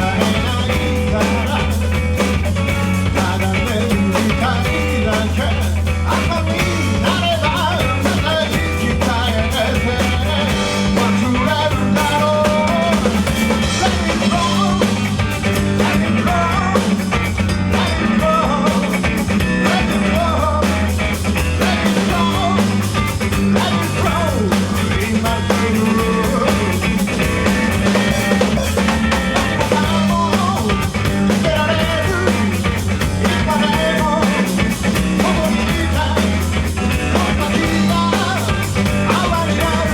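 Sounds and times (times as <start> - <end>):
person singing: 0.0 - 1.9, 3.0 - 27.2, 28.0 - 39.9
rock band playing live: 0.0 - 39.9.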